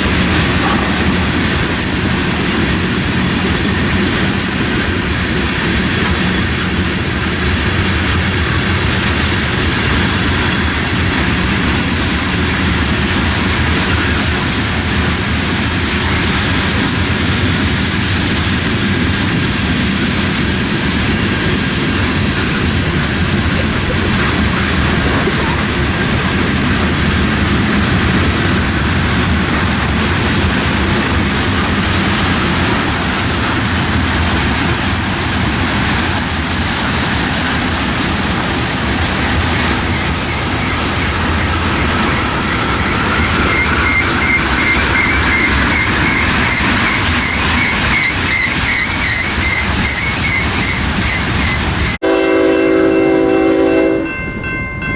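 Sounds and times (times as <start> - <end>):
freight train wheels rumbling on rails: 0.0 - 54.9
high pulsing squeals: 39.5 - 51.7.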